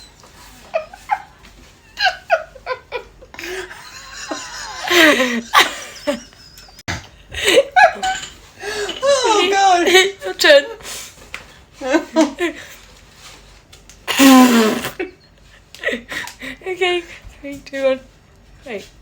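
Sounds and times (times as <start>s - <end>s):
women laughing: 0.6s - 10.7s, 11.8s - 12.7s.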